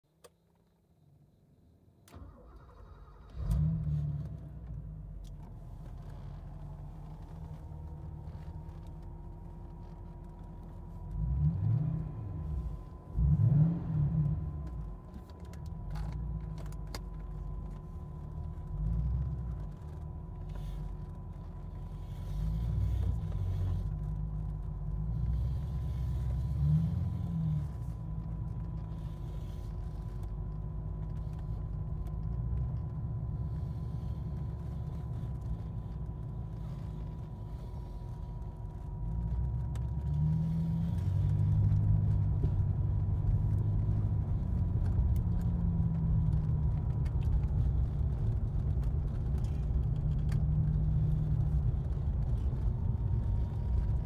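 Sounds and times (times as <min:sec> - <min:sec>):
car engine starting and idling: 0:00.1 - 0:54.0
engine revving: 0:11.1 - 0:14.8, 0:25.1 - 0:28.3.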